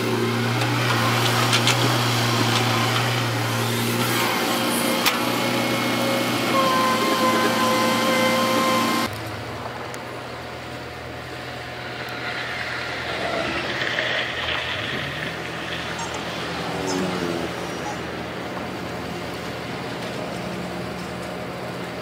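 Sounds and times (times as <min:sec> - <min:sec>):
heavy diesel machinery engine: 0:00.0 - 0:22.0.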